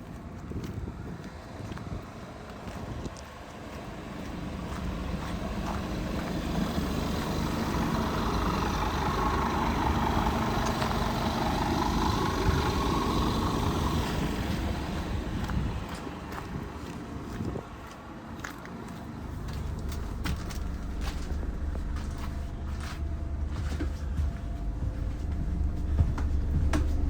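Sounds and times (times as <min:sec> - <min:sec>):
coach engine running: 0:01.2 - 0:27.0.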